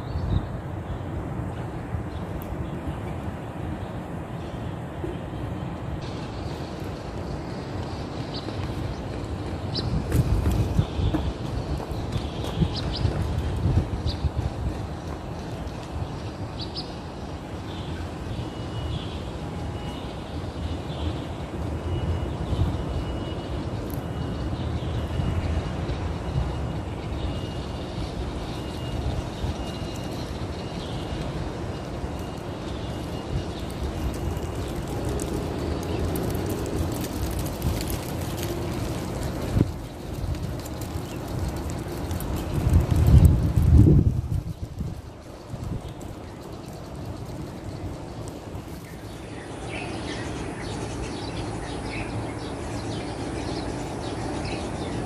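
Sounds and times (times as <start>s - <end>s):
wind noise on microphone: 0.0s - 5.0s, 5.7s - 17.2s, 28.1s - 49.0s
birds chirping: 0.0s - 43.4s, 44.4s - 55.0s
outdoor background rumble: 0.0s - 55.0s
low outdoor rumble: 27.8s - 55.0s.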